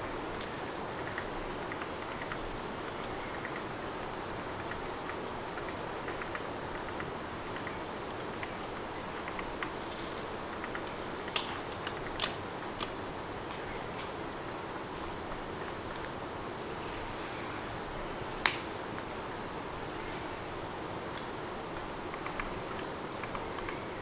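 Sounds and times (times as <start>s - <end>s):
small birds chirping: 0.0s - 5.3s, 5.9s - 17.6s, 19.9s - 20.6s, 22.0s - 24.0s
steady rain: 0.0s - 24.0s
sharp clicks: 10.6s - 14.2s.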